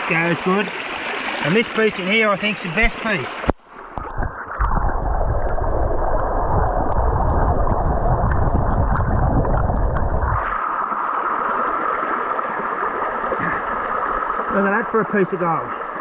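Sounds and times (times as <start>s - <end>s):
rush of falling water: 0.0s - 4.0s
underwater rush of creek water: 0.0s - 16.0s.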